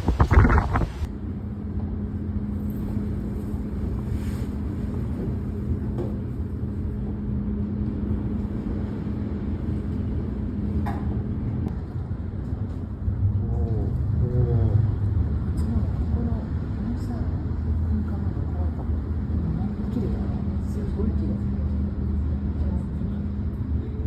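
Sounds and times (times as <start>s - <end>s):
wind buffeting microphone: 0.0s - 1.1s
low rumble with low hum: 0.0s - 24.0s.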